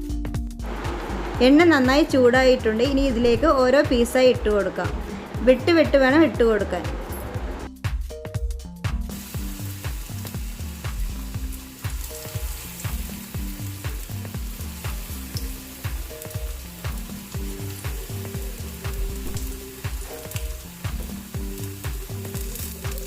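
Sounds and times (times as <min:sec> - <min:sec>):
background music with steady beat: 0:00.0 - 0:23.0
chicken sizzling in hot oil: 0:09.1 - 0:23.0.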